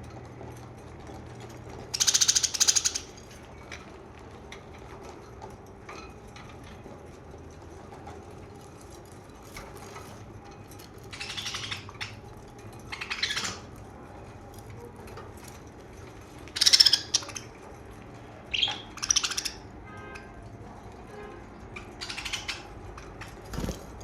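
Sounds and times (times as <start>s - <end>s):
budgerigars chirping and chattering: 2.0s - 3.2s, 11.0s - 12.2s, 12.9s - 13.7s, 16.5s - 17.6s, 18.5s - 19.7s, 21.8s - 22.8s.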